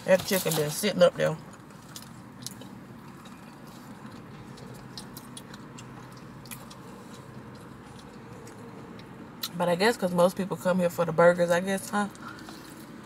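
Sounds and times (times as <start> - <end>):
close-up chewing: 1.5 - 9.5.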